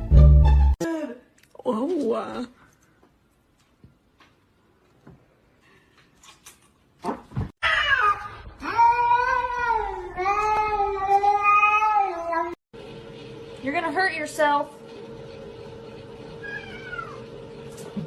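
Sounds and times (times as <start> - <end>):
cat meowing: 16.4 - 17.2.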